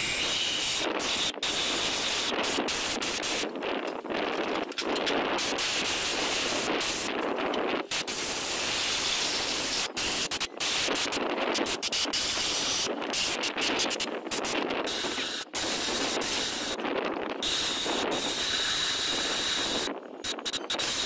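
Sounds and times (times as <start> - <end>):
compressed air blowgun hissing: 5.4 - 7.1, 7.9 - 16.8, 17.4 - 21.0.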